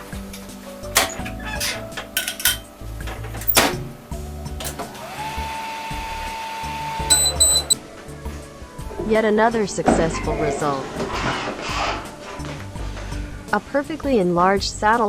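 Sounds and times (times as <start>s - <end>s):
microwave running hum: 0.0s - 7.8s
microwave door and button clicks: 7.1s - 7.8s
short high beeps: 7.1s - 7.8s.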